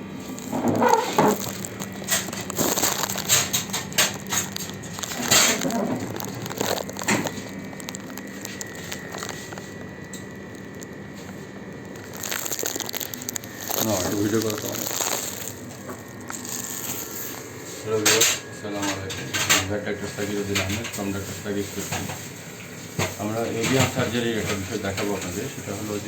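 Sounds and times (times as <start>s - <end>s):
crinkling handling noises: 0.0s - 26.0s
faint steady hum: 0.0s - 26.0s.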